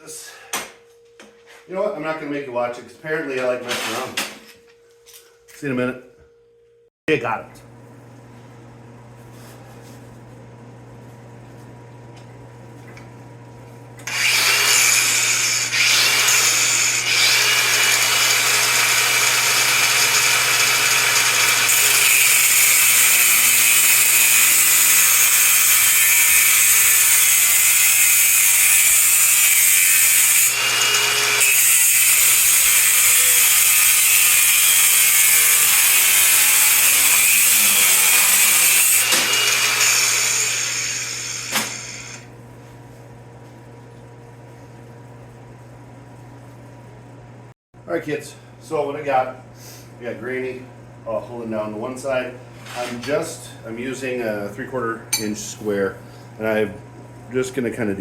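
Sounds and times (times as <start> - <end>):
power tool cutting steel pipe: 14.0 - 42.2.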